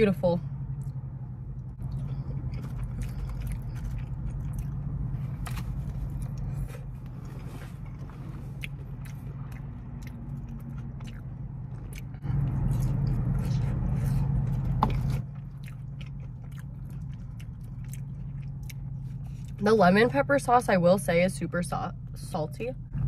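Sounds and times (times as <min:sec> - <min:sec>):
low steady hum: 0:00.0 - 0:23.0
close-up chewing and biting: 0:00.7 - 0:19.6.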